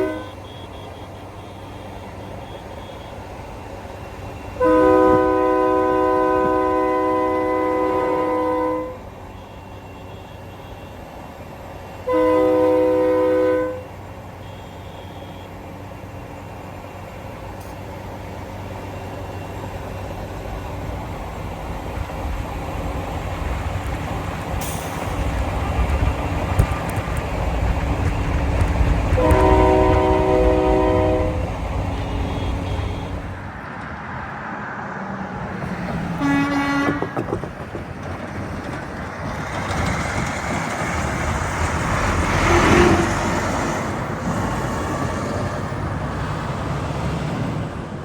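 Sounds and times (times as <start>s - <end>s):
air horn chord blast: 0.0s - 1.6s, 4.6s - 9.0s, 12.1s - 13.9s, 29.2s - 33.4s, 36.2s - 37.1s
heavy vehicle rumble: 0.0s - 48.0s.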